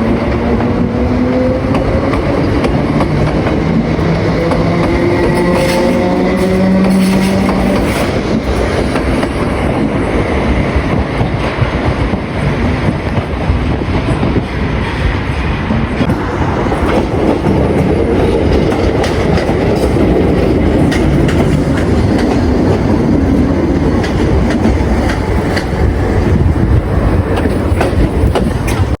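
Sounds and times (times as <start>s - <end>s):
train rumble: 0.0s - 29.0s
train wheels clacking over rail joints: 0.0s - 29.0s.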